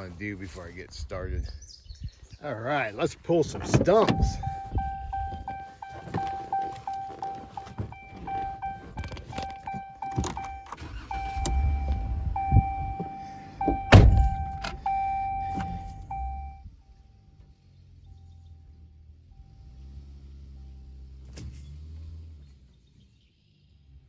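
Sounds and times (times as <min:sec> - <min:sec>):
knocks and clunks: 0:03.3 - 0:16.6
loud thump: 0:11.7 - 0:14.7.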